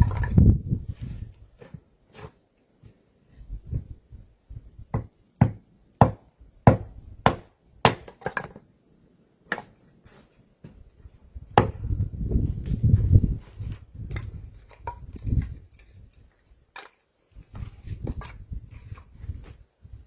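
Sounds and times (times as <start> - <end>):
wood chopping strikes: 4.9 - 8.6, 11.6 - 11.9.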